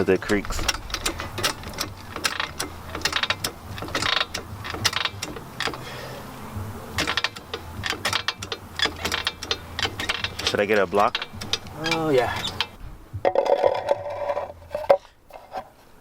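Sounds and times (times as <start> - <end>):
screwdriver ratcheting clicks: 7.0 - 12.8.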